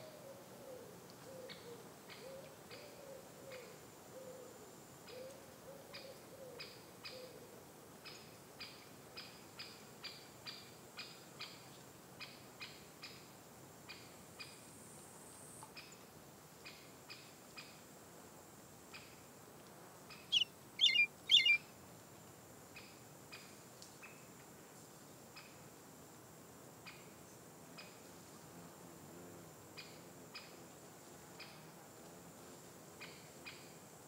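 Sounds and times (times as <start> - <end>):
low hooting bird calls: 20.3 - 21.6
short high clipped bird notes: 20.4 - 21.6.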